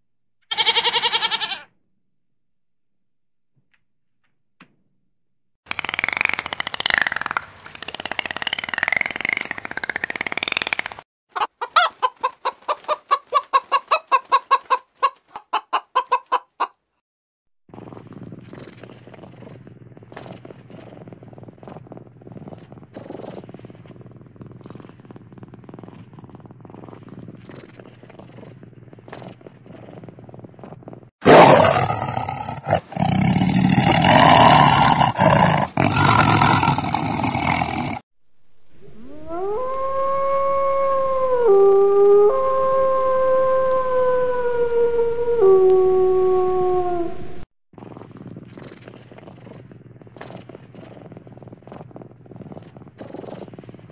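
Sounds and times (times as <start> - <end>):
chicken clucking: 11.4 - 16.8
cat purring: 17.7 - 31.1, 47.8 - 53.9
tiger roaring: 31.2 - 38.0.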